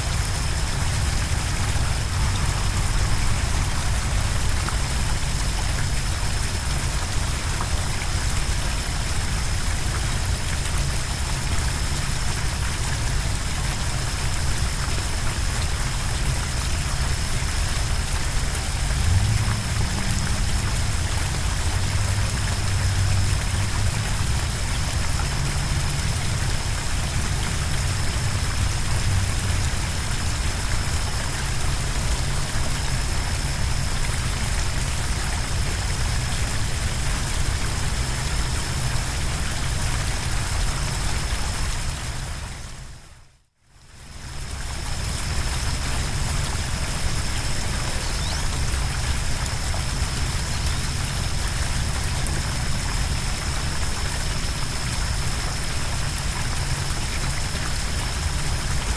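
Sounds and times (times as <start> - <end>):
flowing water rushing: 0.0 - 43.2, 43.9 - 58.9.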